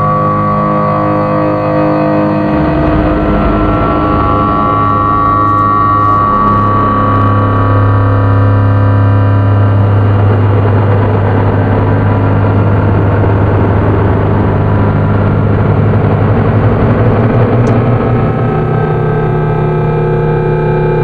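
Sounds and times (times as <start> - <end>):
low synth drone: 0.0 - 21.0
gritty noise layer: 2.4 - 18.8.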